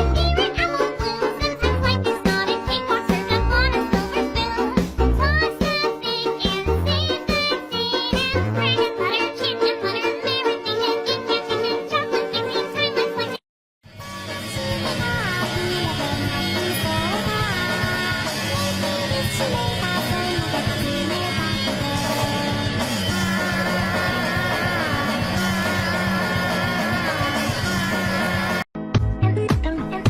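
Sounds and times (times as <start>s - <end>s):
rock music with full band: 14.1s - 28.6s.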